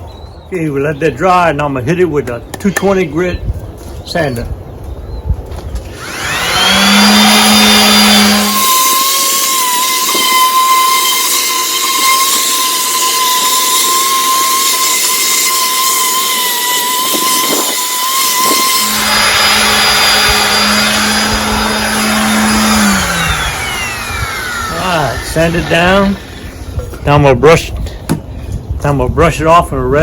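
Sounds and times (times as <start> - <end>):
power sander whining: 5.8 - 27.9.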